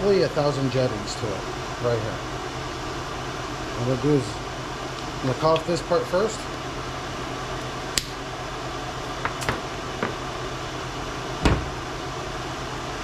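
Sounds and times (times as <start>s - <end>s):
fan humming: 0.0s - 13.0s
heavy knock: 11.4s - 11.8s.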